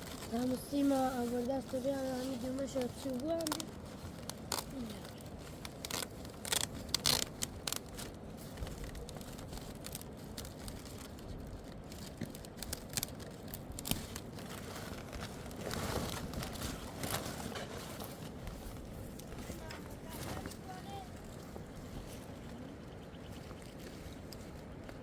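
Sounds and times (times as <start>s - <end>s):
sharp clicks and scrapes: 0.0s - 11.1s
rough scraping: 13.8s - 22.2s.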